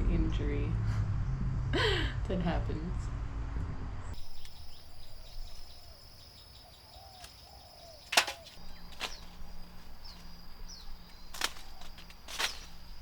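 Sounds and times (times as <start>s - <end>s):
faint bird chirps: 4.1s - 13.0s
insects droning: 4.2s - 13.0s.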